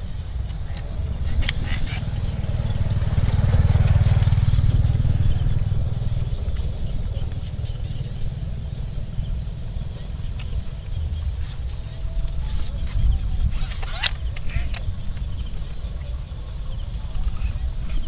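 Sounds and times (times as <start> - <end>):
motorcycle engine rumble: 0.0 - 18.0.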